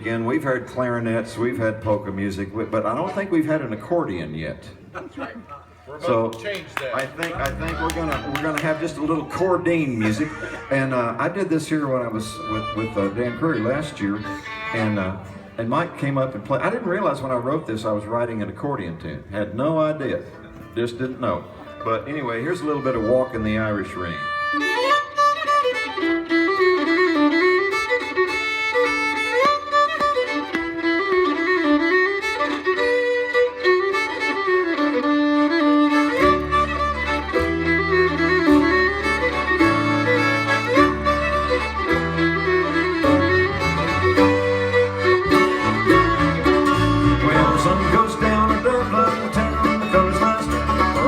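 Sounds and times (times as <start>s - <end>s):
bluegrass band playing: 0.0s - 51.0s
fiddle: 6.8s - 17.6s, 20.3s - 51.0s
accordion: 8.8s - 15.6s, 21.4s - 51.0s.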